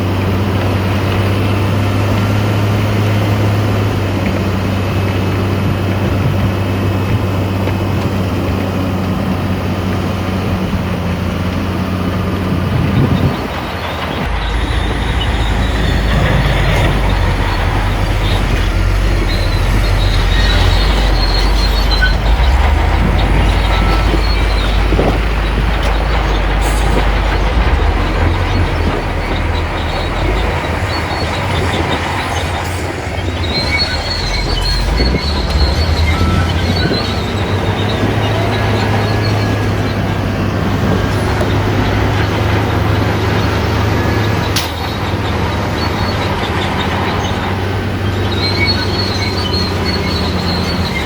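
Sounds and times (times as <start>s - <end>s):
bulldozer diesel engine rumbling: 0.0s - 51.0s
metallic squeals of crawler tracks: 11.1s - 51.0s.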